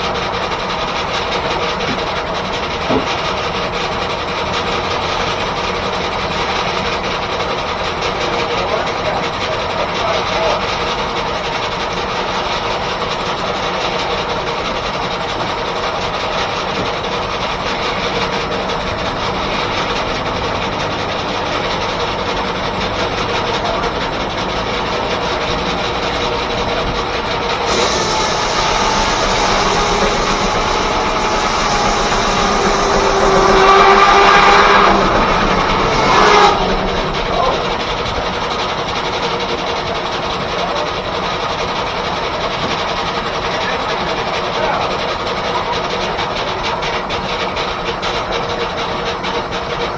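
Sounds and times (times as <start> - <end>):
steam-driven sawmill running: 0.0 - 49.9
loud rough sawing sound: 12.0 - 40.6.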